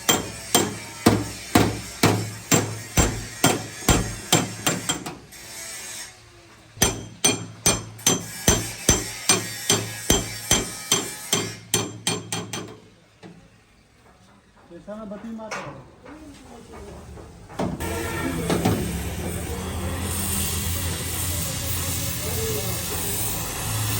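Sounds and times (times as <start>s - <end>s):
hammer blows on sheet metal: 0.0s - 5.2s, 6.8s - 12.8s.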